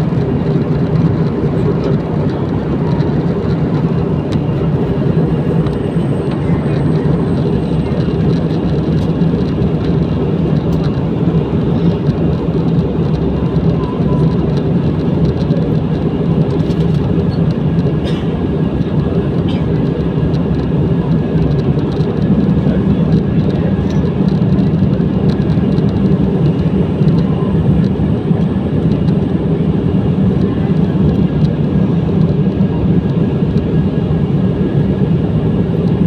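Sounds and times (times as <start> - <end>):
airliner engines droning: 0.0 - 36.0.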